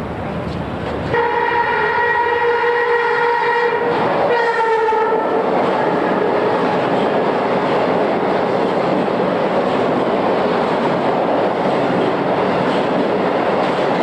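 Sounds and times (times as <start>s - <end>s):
electric train rushing past: 0.0s - 14.0s
train horn blasts: 1.1s - 6.7s.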